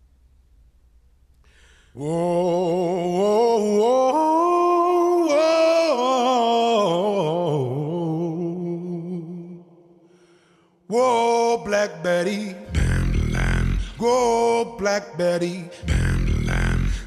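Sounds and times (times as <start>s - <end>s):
man singing drawn-out notes: 10.9s - 17.0s.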